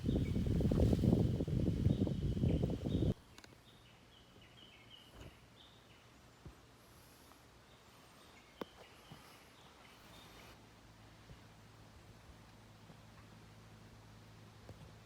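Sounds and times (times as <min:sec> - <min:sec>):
distant birds chirping: 0:00.0 - 0:10.6.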